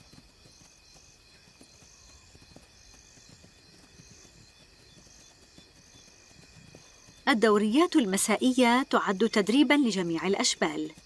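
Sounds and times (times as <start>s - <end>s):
crickets trilling: 0.0s - 11.0s
higher insect trill: 0.0s - 11.0s.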